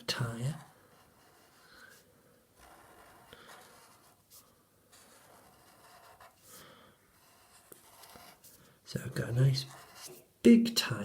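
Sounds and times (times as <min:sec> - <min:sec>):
pen scratching on paper: 0:00.0 - 0:02.0, 0:02.6 - 0:10.3.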